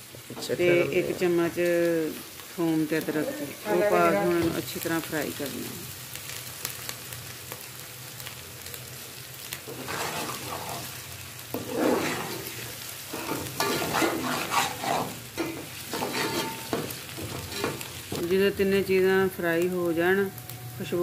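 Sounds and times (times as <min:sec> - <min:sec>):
onions sizzling in hot oil: 0:00.0 - 0:21.0
metal ladle scraping pot: 0:09.7 - 0:10.9, 0:11.6 - 0:17.9.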